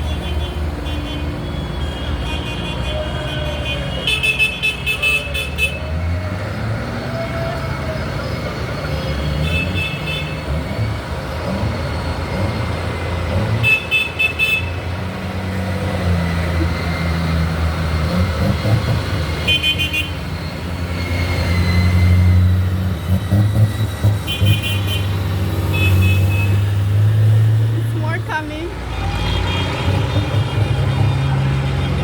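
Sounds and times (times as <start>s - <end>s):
tractor engines passing: 0.0s - 32.0s
rapid horn beeps: 24.0s - 26.8s.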